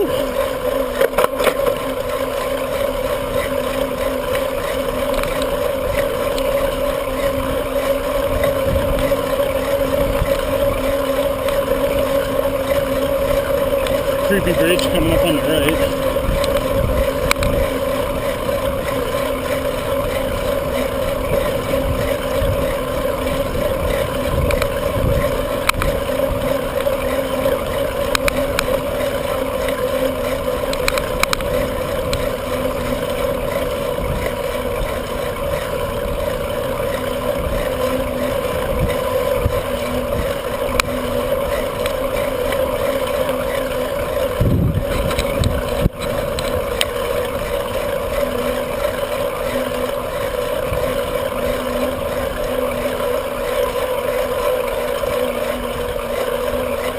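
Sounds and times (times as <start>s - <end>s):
droning hum: 0.0s - 56.9s
wind rumbling on microphone: 7.4s - 14.4s, 15.0s - 29.4s, 44.3s - 48.1s.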